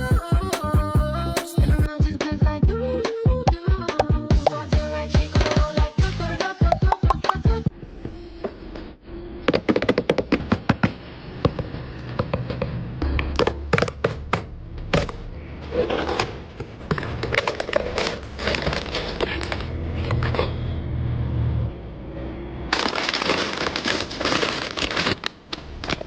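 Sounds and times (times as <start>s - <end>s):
packaging rustling: 16.8s - 19.7s, 22.7s - 26.0s.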